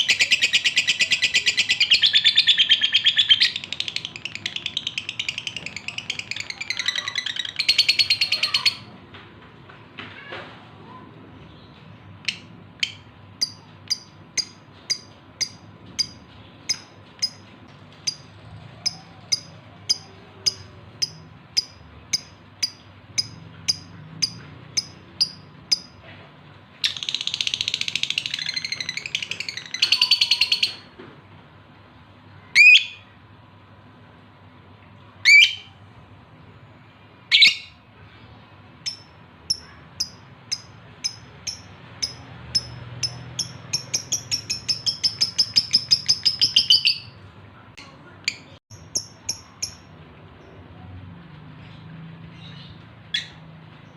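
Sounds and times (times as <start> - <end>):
bird rapid chattering: 0.0 - 8.8, 38.8 - 47.2
lovebird short high chirps: 26.8 - 30.9.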